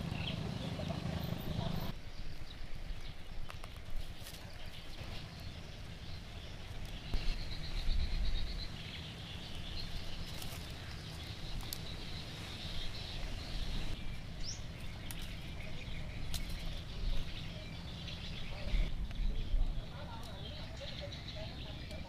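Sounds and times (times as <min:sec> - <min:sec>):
small birds chirping: 0:00.0 - 0:22.0
low rumble: 0:05.0 - 0:19.9.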